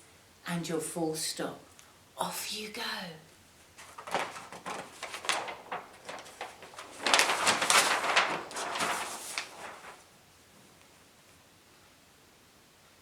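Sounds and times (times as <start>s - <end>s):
rustling noise with clicks: 3.6s - 10.1s.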